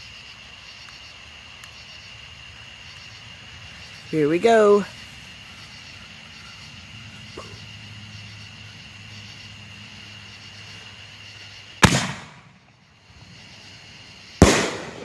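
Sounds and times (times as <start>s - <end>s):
firework bangs: 11.8s - 12.7s, 14.4s - 15.0s.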